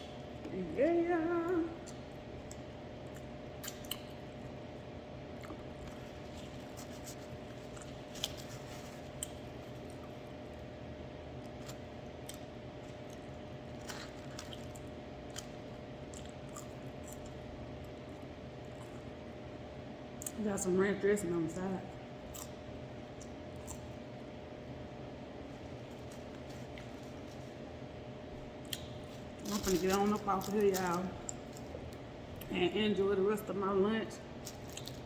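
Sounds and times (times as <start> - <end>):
background hum: 0.0 - 35.0
person chewing food: 5.4 - 10.6, 11.4 - 19.1, 22.2 - 24.1, 25.5 - 27.7, 34.4 - 35.0.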